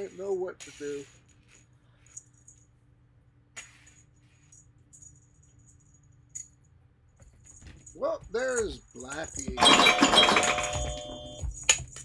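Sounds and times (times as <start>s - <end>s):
toy jingling and clicking: 7.5s - 12.0s.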